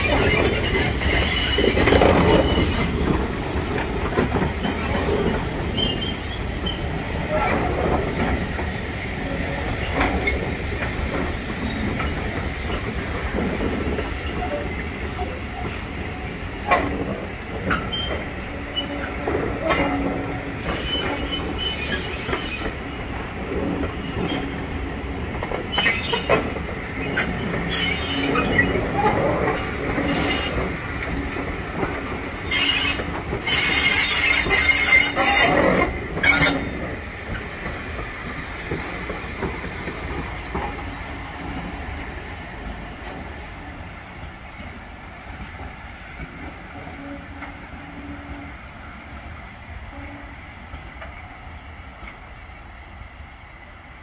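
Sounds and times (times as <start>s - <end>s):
train wheels squealing: 0.0s - 23.1s, 23.8s - 24.9s, 25.6s - 30.6s, 32.4s - 37.5s, 42.9s - 46.0s, 46.9s - 50.0s, 52.3s - 53.7s
sharp clanks and screeches: 4.1s - 20.0s, 32.5s - 36.8s.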